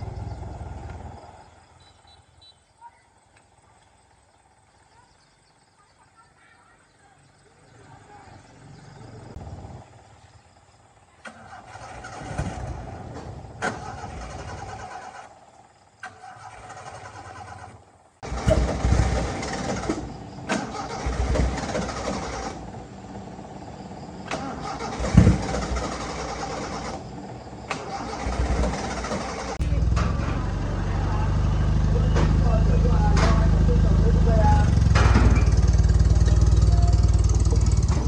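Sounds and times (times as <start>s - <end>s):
car engine cranking on starter: 10.8s - 30.8s, 31.4s - 38.0s.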